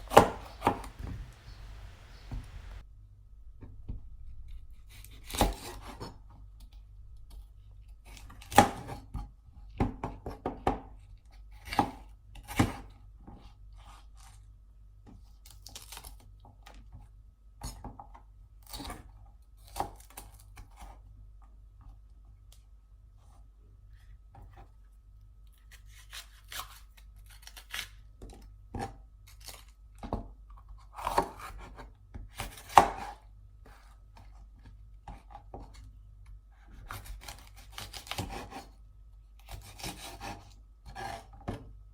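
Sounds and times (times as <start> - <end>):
knife blade knocking: 0.0 - 1.7
knife slicing peppers: 0.0 - 2.8, 36.8 - 38.8, 39.4 - 41.3.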